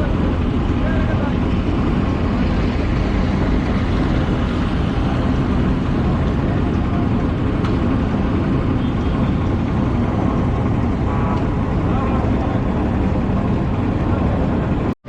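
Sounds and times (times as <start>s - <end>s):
road noise: 0.0s - 15.0s
vehicle engine rumble: 0.0s - 15.0s.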